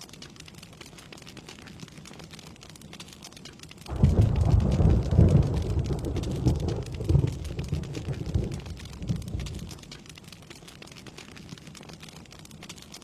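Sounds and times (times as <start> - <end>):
steady rain: 0.0 - 13.0
thunder rolling: 3.9 - 9.8.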